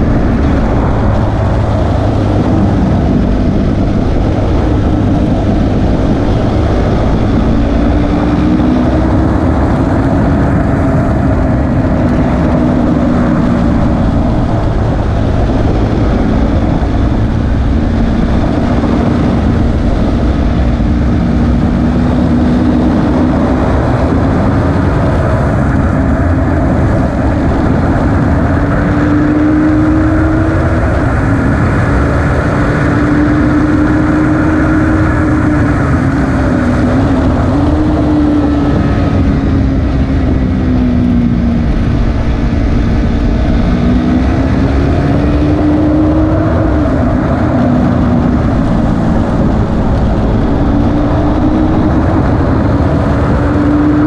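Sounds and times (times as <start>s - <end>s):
motorcycle engine running hard: 0.0s - 54.0s
wind rush: 0.0s - 54.0s.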